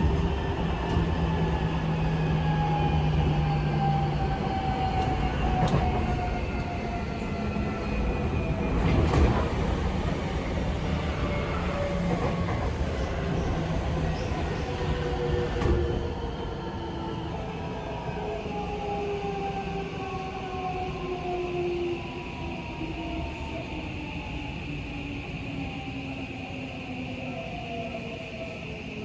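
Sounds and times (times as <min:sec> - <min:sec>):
wheels rumbling on rail: 0:00.0 - 0:16.3
rail joint clicks: 0:03.0 - 0:16.1.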